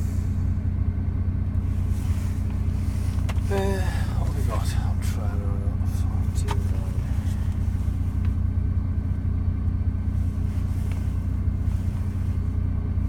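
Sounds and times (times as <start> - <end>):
low drone in lorry cab: 0.0 - 13.0.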